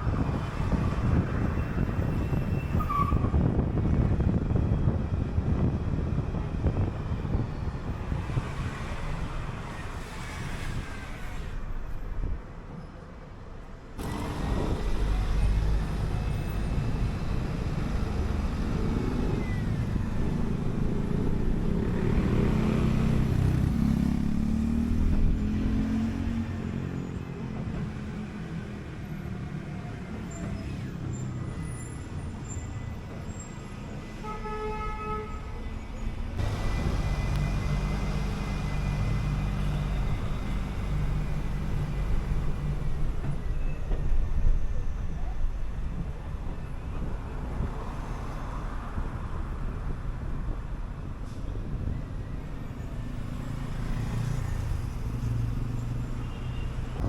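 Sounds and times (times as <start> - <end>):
road noise: 0.0 - 57.0
bus engine running: 14.0 - 28.6, 36.4 - 47.8.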